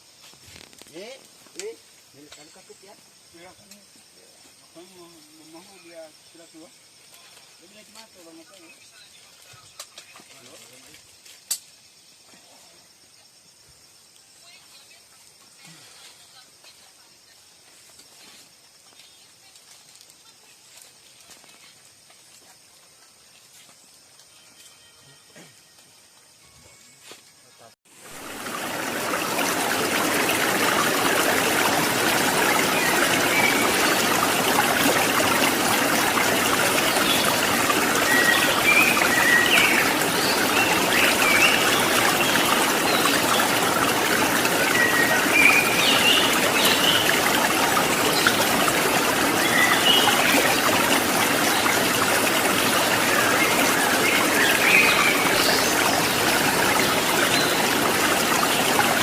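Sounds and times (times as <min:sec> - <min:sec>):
rushing stream water: 0:27.9 - 0:59.0.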